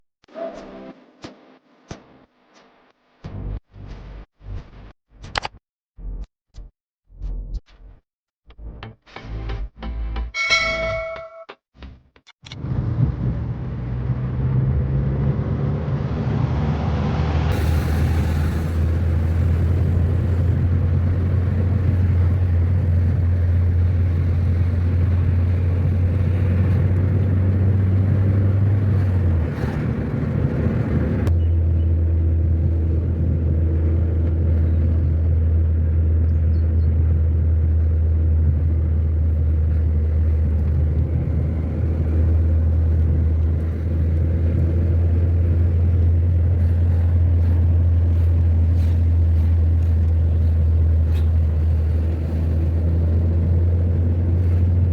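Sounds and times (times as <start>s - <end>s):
car engine and road noise: 12.4s - 54.9s.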